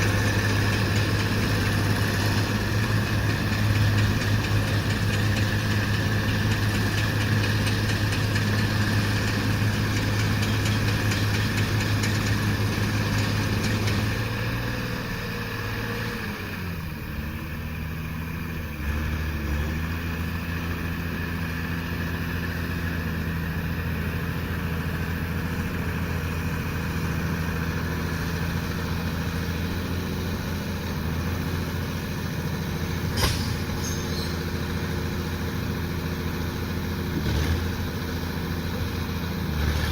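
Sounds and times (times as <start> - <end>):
tractor engine running: 0.0 - 39.9
sharp click: 33.2 - 34.5.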